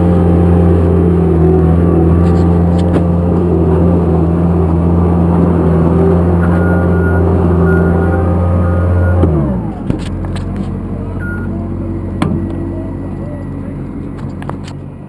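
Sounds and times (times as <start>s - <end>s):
large engine running: 0.0s - 15.0s.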